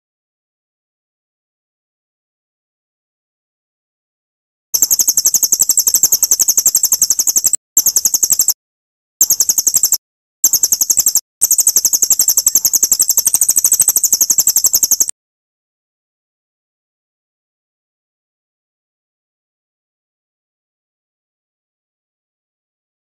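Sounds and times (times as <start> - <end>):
songbird high rapid trill: 4.8 - 8.6, 9.2 - 15.1.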